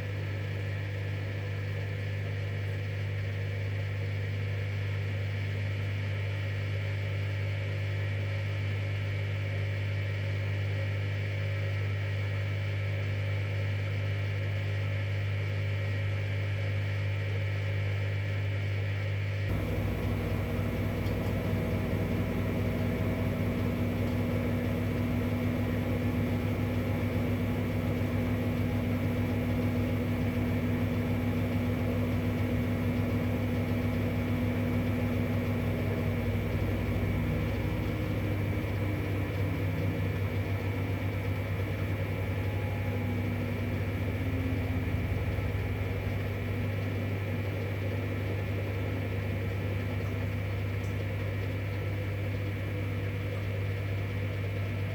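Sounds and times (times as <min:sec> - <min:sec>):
washing machine motor hum: 0:19.5 - 0:54.9.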